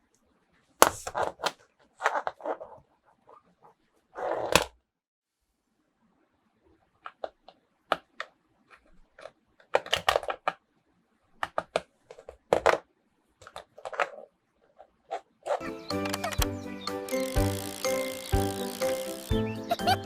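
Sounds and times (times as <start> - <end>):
clicks and taps of toys handled: 0.8 - 2.8, 7.0 - 10.6, 11.4 - 15.2.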